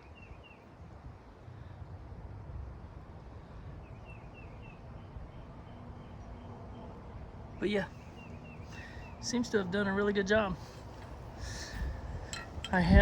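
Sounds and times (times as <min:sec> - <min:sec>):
steady low rumble: 0:11.0 - 0:13.0.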